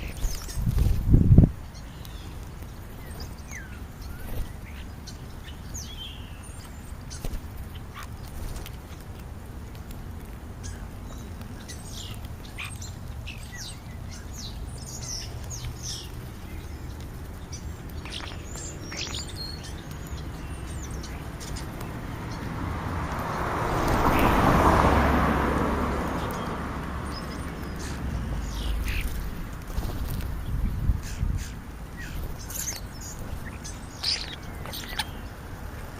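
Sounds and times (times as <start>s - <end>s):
birds chirping: 0.0s - 35.9s
broad rushing noise: 6.6s - 35.9s.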